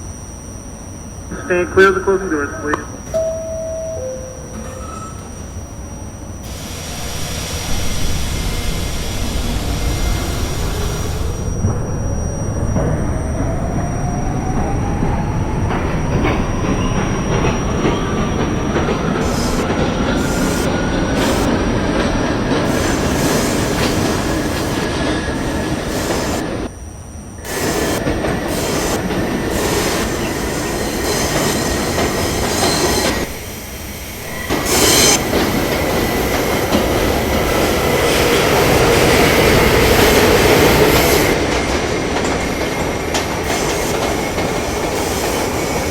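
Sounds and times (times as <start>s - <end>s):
train wheels rumbling on rails: 1.3s - 26.7s, 27.4s - 45.9s
traction motor whine rising: 2.7s - 26.7s.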